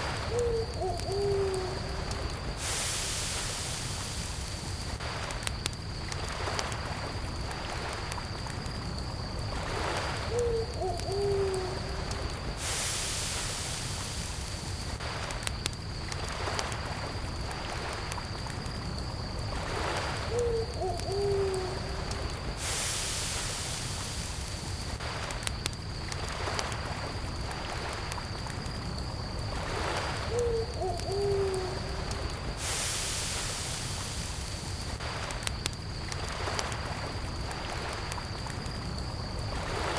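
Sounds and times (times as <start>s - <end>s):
crackling campfire: 0.0s - 39.9s
crickets trilling: 0.0s - 39.9s
low hooting call: 0.3s - 2.0s, 10.3s - 12.1s, 20.3s - 22.0s, 30.3s - 32.1s.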